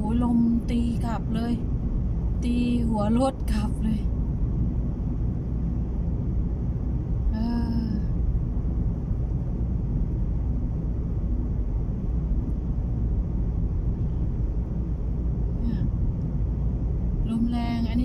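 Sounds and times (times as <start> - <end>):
car driving rumble: 0.0 - 18.0
wind against car: 0.0 - 18.0.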